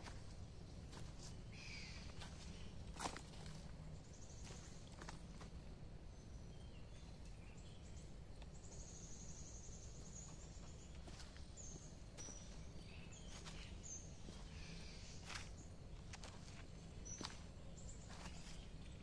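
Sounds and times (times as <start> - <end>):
birds chirping and whistling: 8.6 - 16.3, 17.0 - 18.8.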